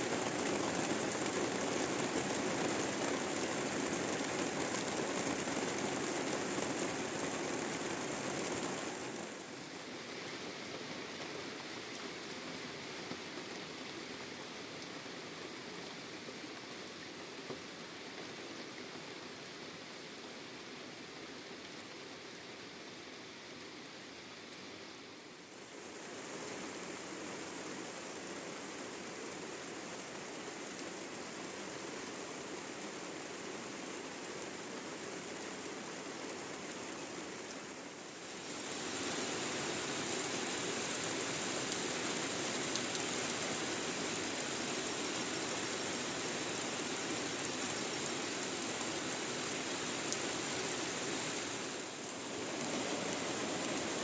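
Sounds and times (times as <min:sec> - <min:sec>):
hiss of rain or running water: 0:00.0 - 0:54.0.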